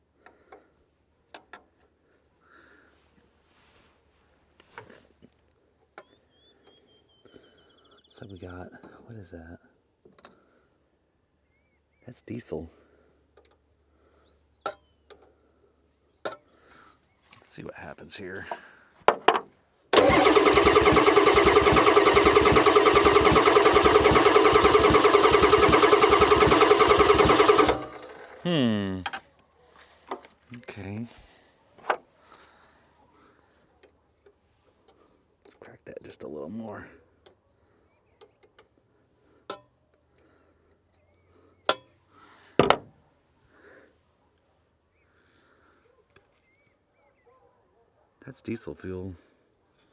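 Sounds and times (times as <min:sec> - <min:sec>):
starter motor cranking diesel engine: 0:20.0 - 0:28.5.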